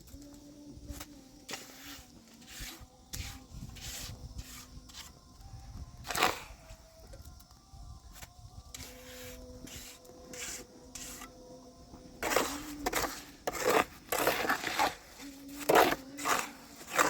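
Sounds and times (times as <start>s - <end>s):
short scraping strokes: 1.5s - 5.1s.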